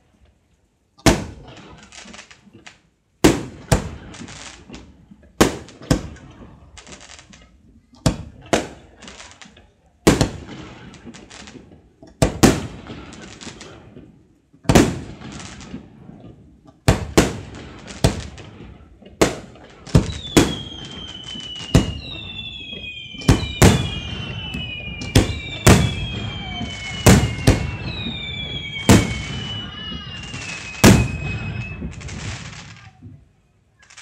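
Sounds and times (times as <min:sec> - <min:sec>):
firework shells bursting: 0:01.0 - 0:32.9
firework crackle: 0:01.0 - 0:34.0
firework whistles falling in pitch: 0:19.3 - 0:33.1.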